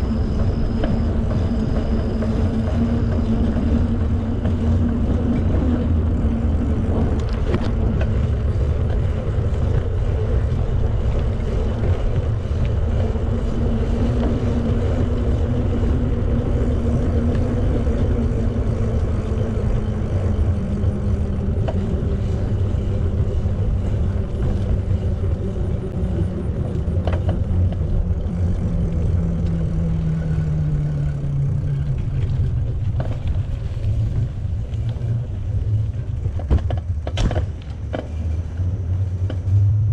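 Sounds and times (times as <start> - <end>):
road noise from bicycle: 0.0 - 39.9
wind: 0.0 - 39.9.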